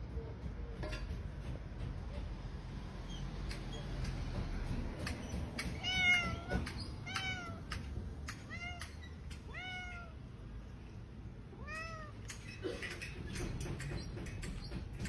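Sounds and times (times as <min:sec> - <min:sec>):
cat meowing: 0:05.8 - 0:10.3, 0:11.5 - 0:12.4.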